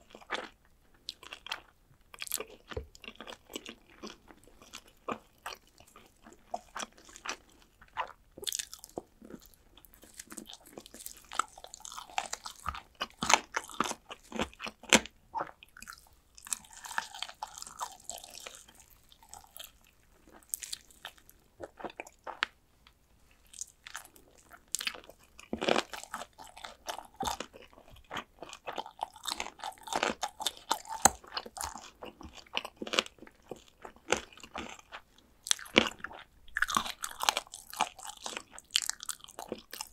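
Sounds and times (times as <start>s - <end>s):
crunching and chewing fried chicken: 0.0s - 39.9s.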